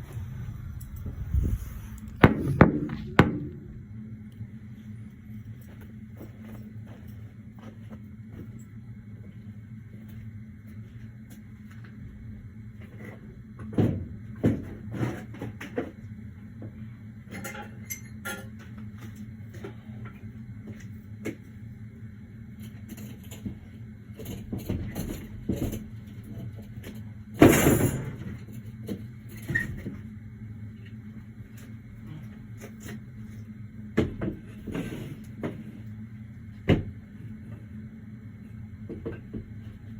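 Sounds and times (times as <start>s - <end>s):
steady low hum: 0.0s - 39.9s
heavy thump: 2.2s - 3.8s.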